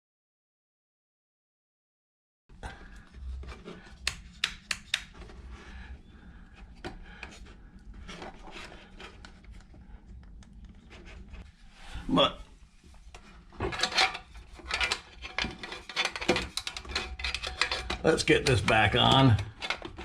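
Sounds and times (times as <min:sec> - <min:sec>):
hands rubbing and scraping wires: 0:02.8 - 0:05.8, 0:06.4 - 0:20.0.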